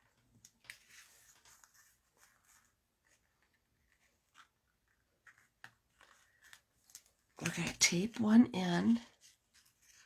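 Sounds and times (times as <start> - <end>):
paper rustling and tapping: 0.0 - 8.0.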